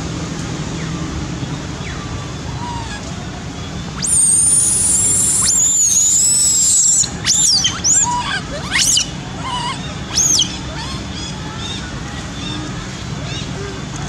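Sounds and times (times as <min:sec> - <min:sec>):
baby monkey screaming: 0:02.6 - 0:03.1, 0:04.0 - 0:11.8.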